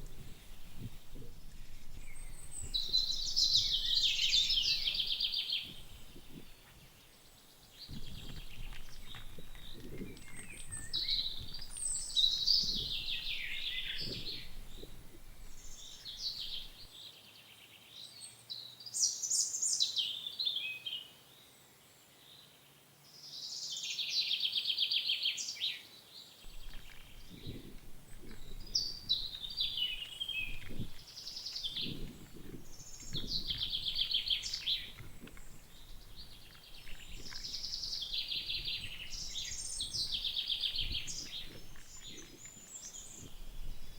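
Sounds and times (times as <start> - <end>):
songbirds chirping: 0.0 - 43.9
soft low knocks: 7.8 - 16.9, 26.5 - 42.5.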